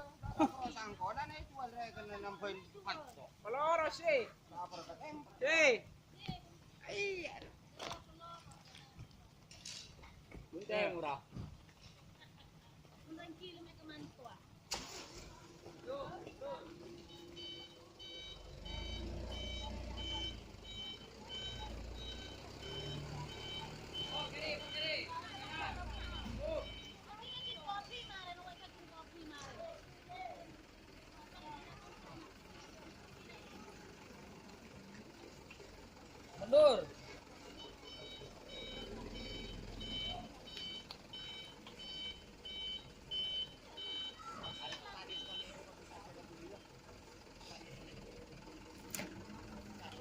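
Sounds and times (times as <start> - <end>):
diesel engine running: 12.7 - 50.0
truck reversing alarm beeping: 14.8 - 29.6, 36.4 - 46.8.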